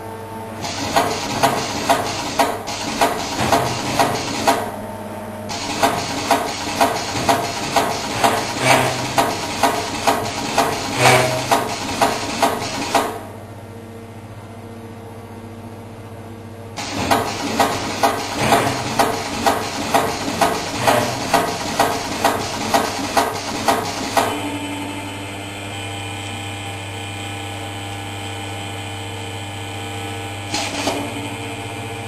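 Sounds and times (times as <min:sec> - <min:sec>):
steady motor hum: 0:00.0 - 0:32.0
rivet machine press strokes: 0:00.6 - 0:04.7, 0:05.5 - 0:13.2, 0:16.8 - 0:24.4.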